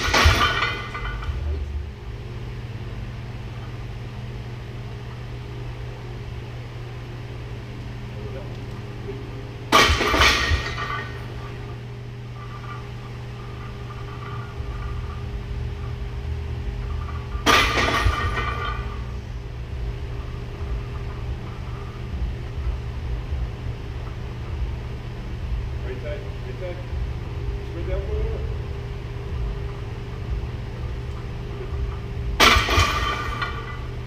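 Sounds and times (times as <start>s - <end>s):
barbell plates clanking on steel rack: 0.0s - 1.4s, 16.9s - 19.0s
steady low hum: 0.0s - 34.0s.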